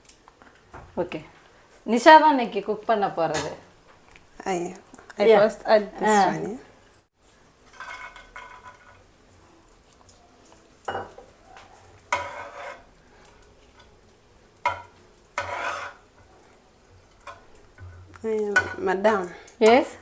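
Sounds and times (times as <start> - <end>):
nuts frying in oil: 7.1 - 20.0
spoon scraping a pan: 7.3 - 20.0.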